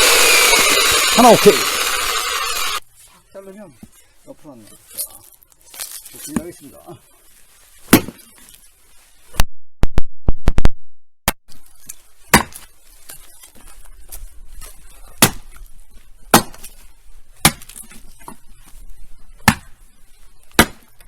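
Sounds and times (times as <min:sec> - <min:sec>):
firewood being chopped: 0:07.9 - 0:08.3, 0:12.3 - 0:12.7, 0:14.6 - 0:15.6, 0:16.3 - 0:16.8, 0:17.4 - 0:18.4, 0:19.4 - 0:19.8, 0:20.5 - 0:21.0.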